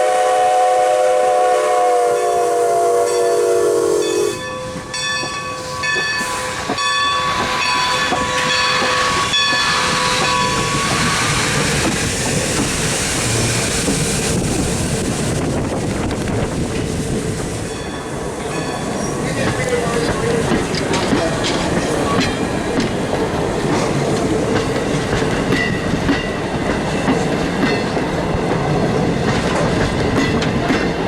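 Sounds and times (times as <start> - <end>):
steam whistle chord: 0.0 - 4.5
steam train running past: 0.0 - 31.0.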